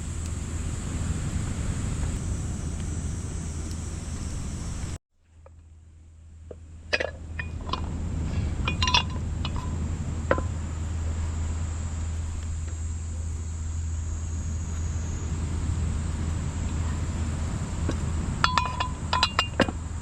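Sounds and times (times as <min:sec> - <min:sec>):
high-pitched hiss: 0:00.0 - 0:05.0, 0:07.3 - 0:20.0
steady low hum: 0:00.0 - 0:20.0
glass clinks and knocks: 0:08.7 - 0:09.7, 0:18.4 - 0:19.7.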